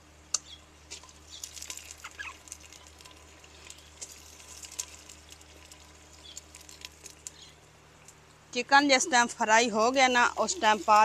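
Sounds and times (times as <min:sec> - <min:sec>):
chicken frying with sizzling pops: 0:00.3 - 0:08.4.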